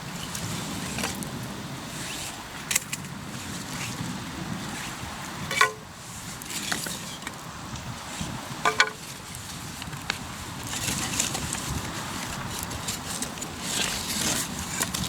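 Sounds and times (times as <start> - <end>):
campfire crackling: 7.2 - 15.0.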